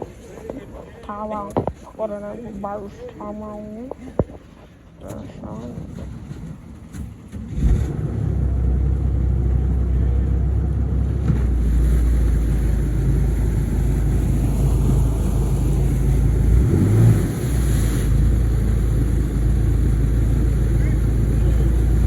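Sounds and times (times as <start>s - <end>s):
water rushing: 1.6s - 22.0s
motorboat engine running: 3.7s - 22.0s.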